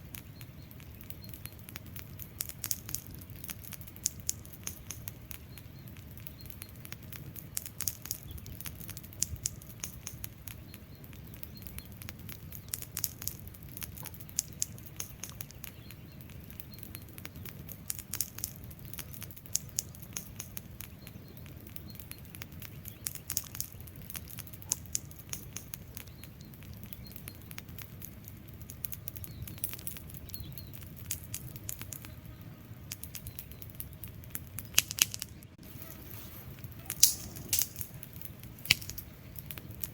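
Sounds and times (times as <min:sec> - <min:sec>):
fire crackling and popping: 0:00.0 - 0:39.9
flames rushing: 0:32.7 - 0:39.9.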